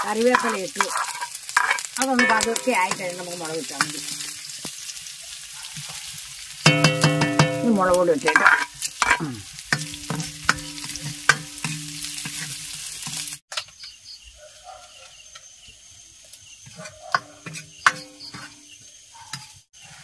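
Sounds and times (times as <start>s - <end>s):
wooden spatula scraping pan: 0.0s - 3.8s, 7.6s - 9.2s, 16.7s - 20.0s
vegetables sizzling in hot oil: 0.0s - 14.0s, 15.3s - 20.0s.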